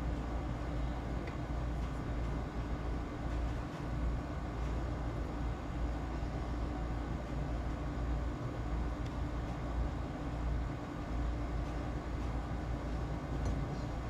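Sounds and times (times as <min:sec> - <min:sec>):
low rumble with hum: 0:00.0 - 0:14.0.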